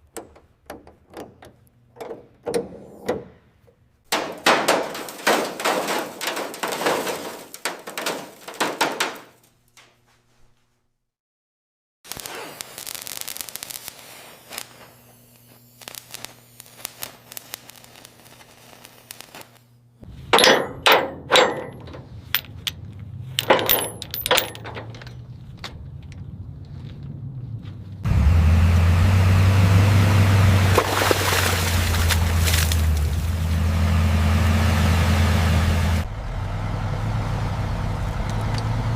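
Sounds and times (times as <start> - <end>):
low engine drone: 20.0 - 38.9
metal clinking on metal: 20.3 - 25.3
metallic clicks: 20.4 - 26.2.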